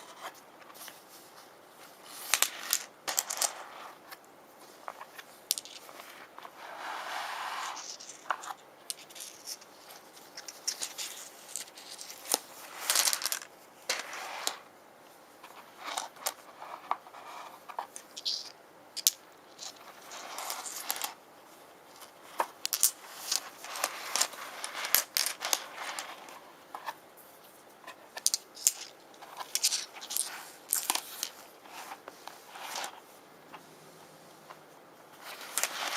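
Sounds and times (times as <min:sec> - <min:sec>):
scraping and rustling: 0:00.0 - 0:35.9.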